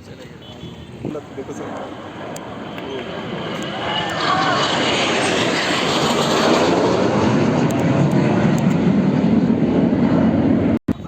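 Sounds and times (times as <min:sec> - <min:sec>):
jet aircraft roar: 0:00.0 - 0:11.0.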